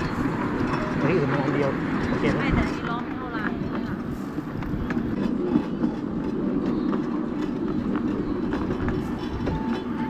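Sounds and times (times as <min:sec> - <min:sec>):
miniature train rattling on track: 0:00.0 - 0:10.0.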